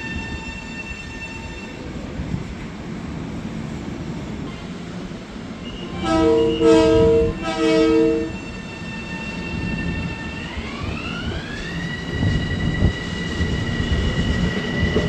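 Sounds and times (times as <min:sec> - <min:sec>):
passing train rumble: 0:00.0 - 0:15.0
train horn blasts: 0:05.8 - 0:08.5.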